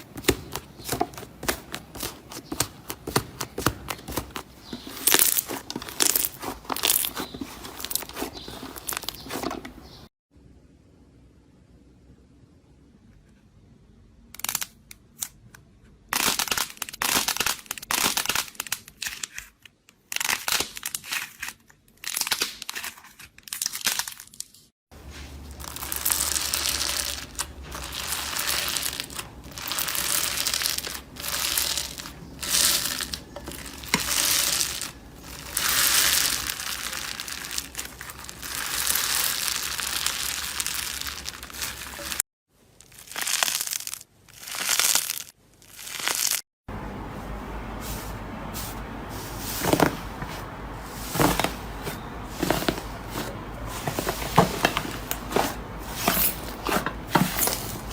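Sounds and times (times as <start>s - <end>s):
slime crackling squishes: 0.0s - 10.0s, 25.5s - 42.2s, 42.8s - 46.4s.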